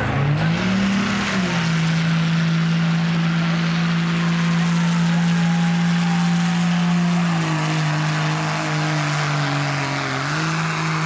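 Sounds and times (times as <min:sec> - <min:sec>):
diesel truck engine revving: 0:00.0 - 0:11.0.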